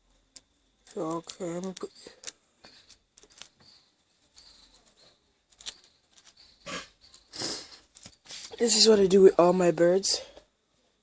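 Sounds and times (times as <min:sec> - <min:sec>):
handling clicks and rustles: 0:00.3 - 0:08.5
faint high squeaks: 0:01.4 - 0:08.6.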